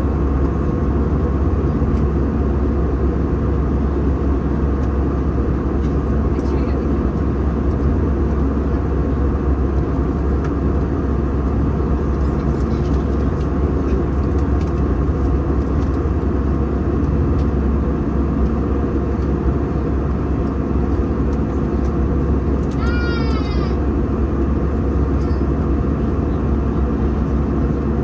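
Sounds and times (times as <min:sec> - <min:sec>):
airplane cabin rumble: 0:00.0 - 0:28.0.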